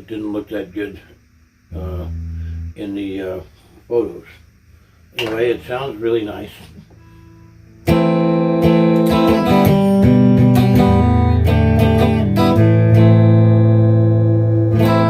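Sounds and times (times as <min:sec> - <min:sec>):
electric guitar chords and notes: 0:01.7 - 0:02.8, 0:07.8 - 0:15.0.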